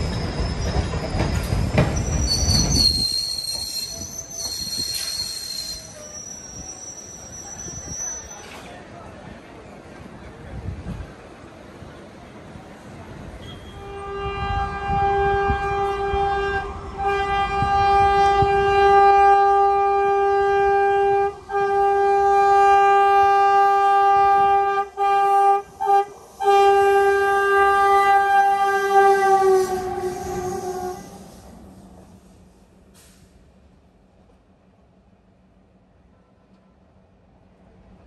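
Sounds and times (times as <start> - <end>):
train rumbling: 0.0 - 38.0
locomotive horn blasts: 13.4 - 31.2.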